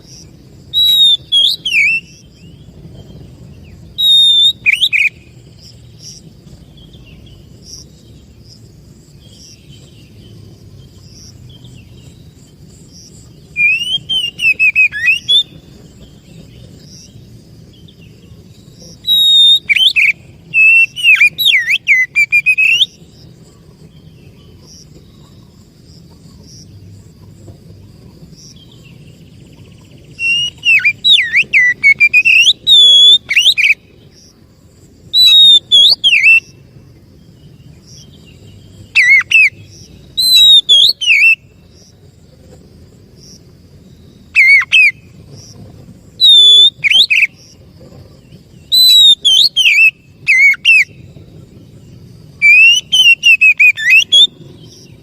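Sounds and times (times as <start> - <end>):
bird singing whistled phrases: 0.7 - 2.6, 3.9 - 5.3, 13.5 - 15.6, 19.0 - 23.0, 30.0 - 33.8, 35.2 - 36.6, 38.9 - 41.4, 44.4 - 45.0, 46.2 - 47.4, 48.6 - 51.0, 52.4 - 54.9.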